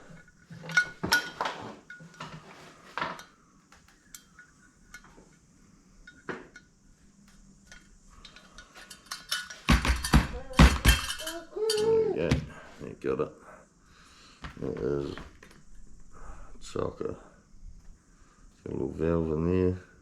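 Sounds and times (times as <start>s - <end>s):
small metal parts clinking: 0.1s - 2.4s, 7.6s - 12.0s.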